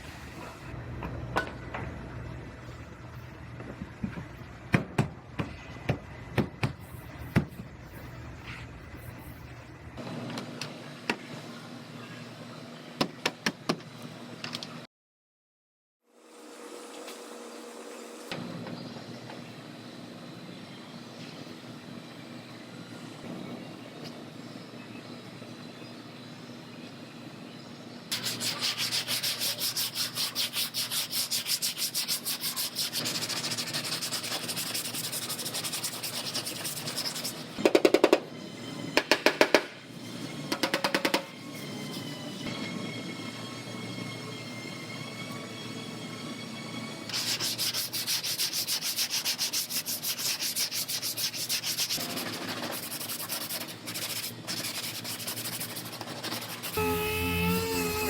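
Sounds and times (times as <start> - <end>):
sandpaper scraping on filler: 28.1 - 37.6, 47.1 - 58.0
steady high whine: 56.6 - 58.0
loud buzzing bursts: 56.7 - 58.0.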